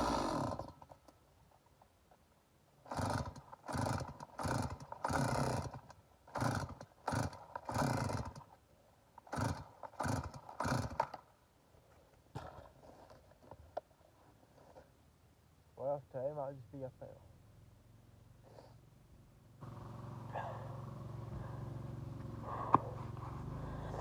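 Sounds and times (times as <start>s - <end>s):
engine turning over: 0.0s - 0.9s, 2.9s - 8.5s, 9.3s - 11.2s, 19.6s - 24.0s
chainsaw recoil starter cord yanks: 0.0s - 1.2s, 2.8s - 8.6s, 9.2s - 11.3s.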